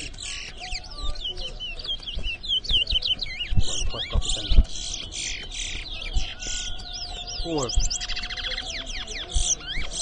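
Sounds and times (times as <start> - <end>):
finch whistled chirping: 0.0 - 10.0
dull low thumps: 2.1 - 5.2.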